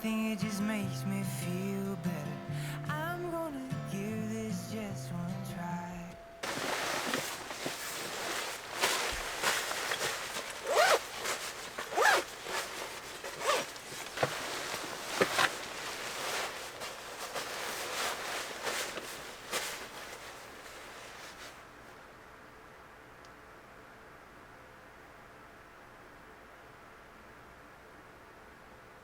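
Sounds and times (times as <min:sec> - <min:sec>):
zipper pulled in short strokes: 0:06.4 - 0:21.5
rustling: 0:06.4 - 0:22.0.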